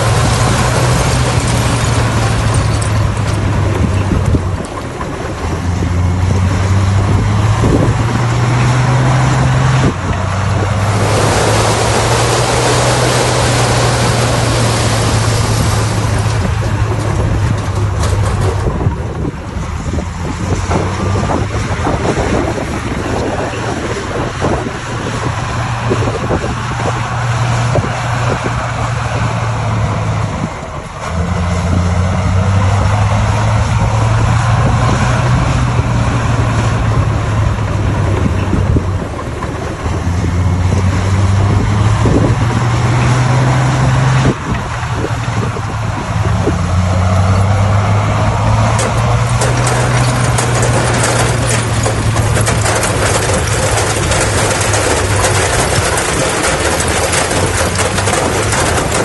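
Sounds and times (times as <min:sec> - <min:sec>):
loud rushing noise: 0:00.0 - 0:04.6, 0:06.4 - 0:18.9
clanks and knocks of stone: 0:00.0 - 0:05.5, 0:48.5 - 0:59.0
bulldozer diesel engine: 0:00.0 - 0:59.0.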